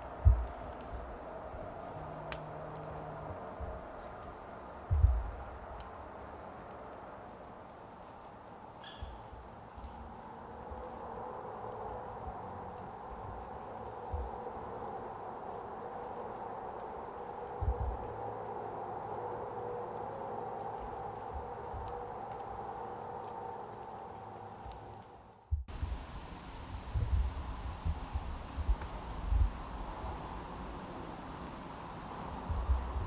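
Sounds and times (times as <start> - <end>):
steady background hiss: 0.0 - 33.0
low thump: 4.9 - 5.3.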